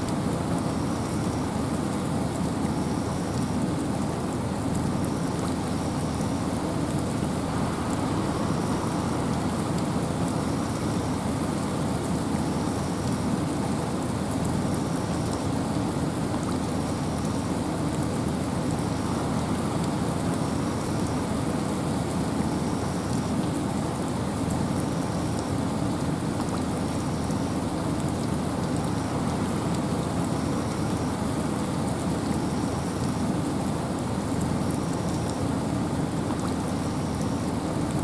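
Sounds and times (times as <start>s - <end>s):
rain: 0.0s - 38.0s
wind in a forest: 0.0s - 38.0s.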